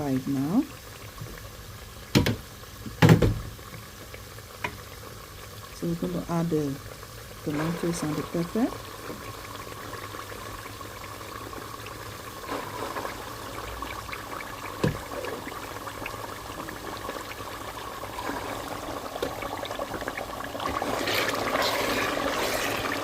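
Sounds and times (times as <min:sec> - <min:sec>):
frying oil sizzling: 0:00.0 - 0:23.0
knock: 0:02.1 - 0:02.4, 0:03.0 - 0:03.5.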